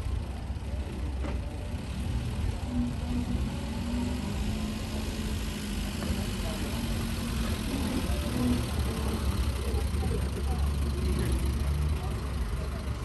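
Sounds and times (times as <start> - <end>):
engine idling: 4.2 - 13.0.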